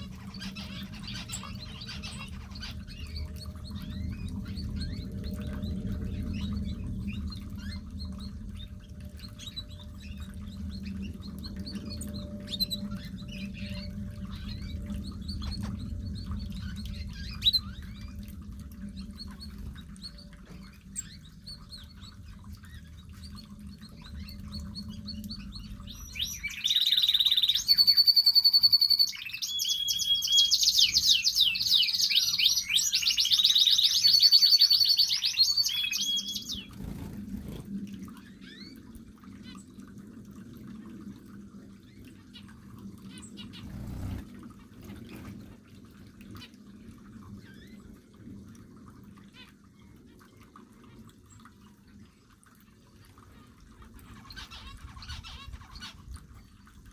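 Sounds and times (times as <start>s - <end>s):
canary singing trills: 0.0s - 18.2s, 18.9s - 37.6s, 43.1s - 45.6s, 54.2s - 56.1s
low steady hum: 0.0s - 28.7s, 36.0s - 56.9s
birds chirping: 0.0s - 38.8s, 42.4s - 45.9s.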